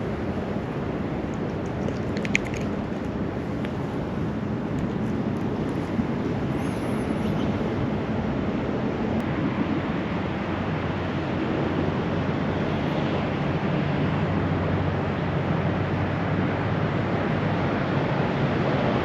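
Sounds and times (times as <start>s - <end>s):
water pouring over a dam: 0.4s - 3.6s.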